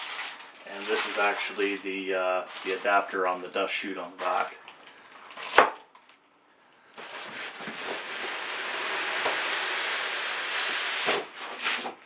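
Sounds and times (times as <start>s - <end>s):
packaging rustling: 0.0s - 3.5s, 4.1s - 6.2s.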